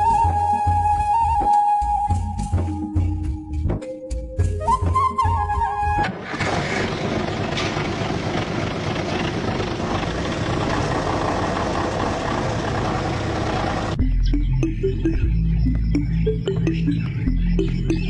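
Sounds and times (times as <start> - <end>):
flute tune: 0.0 - 6.1
music: 0.0 - 6.1, 14.0 - 18.0
engine rumbling: 5.8 - 18.0.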